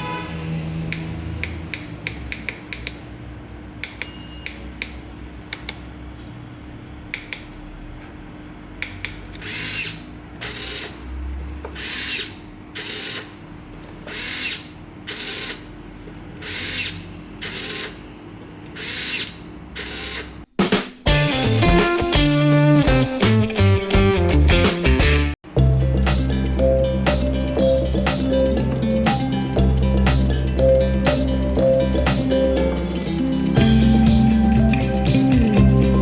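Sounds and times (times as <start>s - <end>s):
small mechanism clicking: 11.8s - 13.4s, 14.1s - 15.7s
mechanism running in short bursts: 11.8s - 15.7s, 16.3s - 18.0s, 18.7s - 20.4s.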